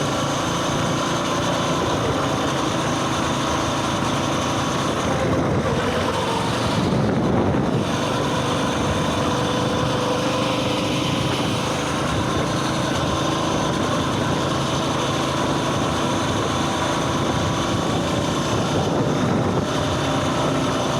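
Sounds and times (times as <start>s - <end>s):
small engine running steadily: 0.0s - 20.9s.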